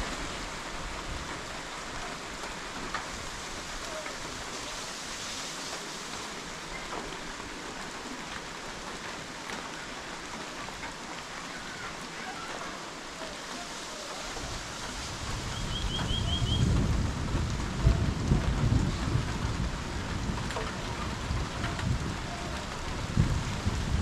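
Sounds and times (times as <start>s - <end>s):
wind rushing hiss: 13.7s - 17.8s
bird chirps: 15.5s - 16.6s
bird trill: 15.6s - 16.6s.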